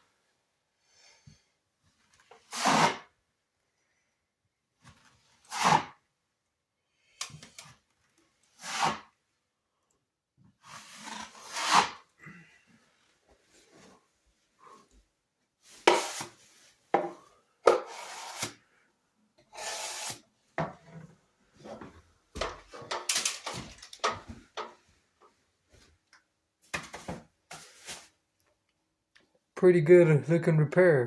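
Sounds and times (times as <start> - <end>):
drywall knife scraping: 2.4 - 3.1, 5.4 - 6.0, 8.5 - 9.2, 10.6 - 12.1, 15.7 - 16.4, 17.6 - 18.7, 19.5 - 20.2.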